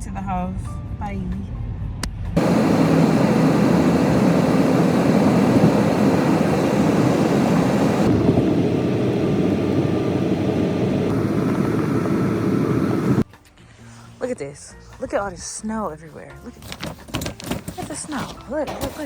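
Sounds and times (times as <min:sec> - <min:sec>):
car road and wind noise: 0:02.3 - 0:13.2.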